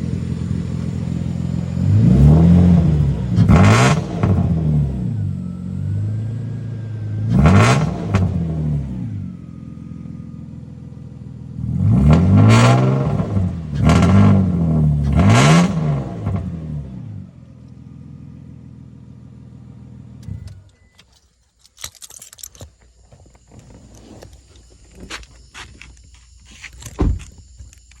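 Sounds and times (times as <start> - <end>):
car engine revving: 0.0 - 10.3, 11.4 - 20.7.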